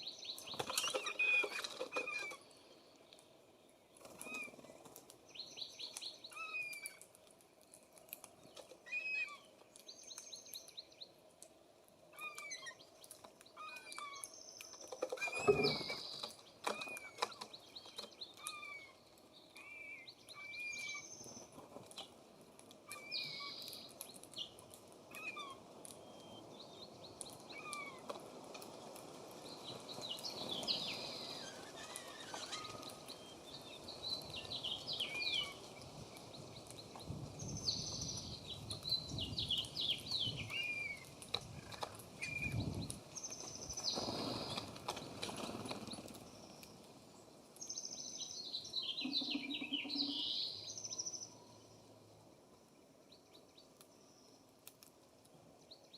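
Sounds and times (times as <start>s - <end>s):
songbirds chirping and singing: 12.2s - 22.1s, 22.9s - 28.1s, 29.4s - 46.8s, 47.6s - 52.0s.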